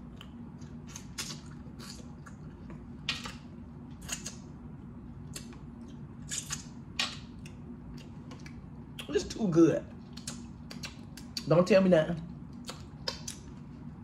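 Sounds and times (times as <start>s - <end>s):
person chewing: 0.0s - 4.5s, 5.2s - 9.1s
low steady hum: 0.0s - 14.0s
wet mouth clicks and lip smacks: 0.2s - 3.4s, 4.0s - 4.5s, 5.3s - 5.6s, 6.3s - 9.1s, 10.1s - 11.5s, 12.6s - 13.5s.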